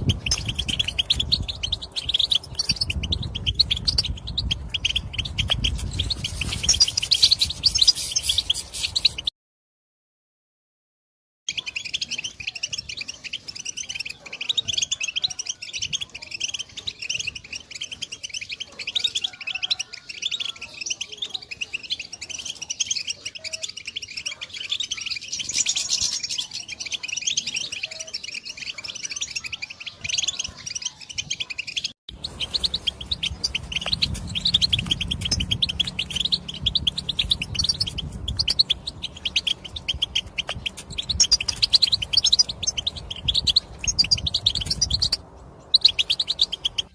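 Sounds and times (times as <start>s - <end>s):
goldfinches twittering: 30.0s - 46.9s.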